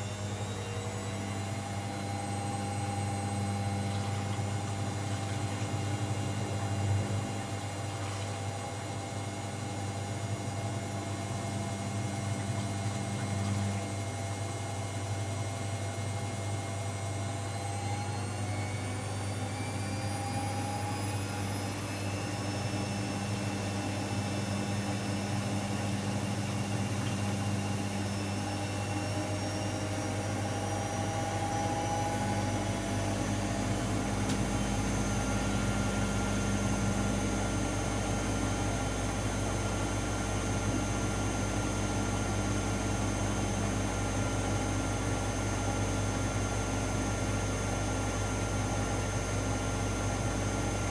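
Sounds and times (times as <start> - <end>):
washing machine motor whine: 0.0 - 50.9.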